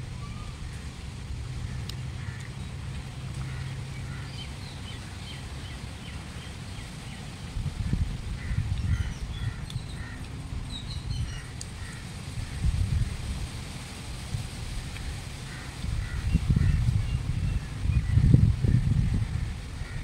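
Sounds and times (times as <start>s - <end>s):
small birds chirping: 8.4s - 12.0s.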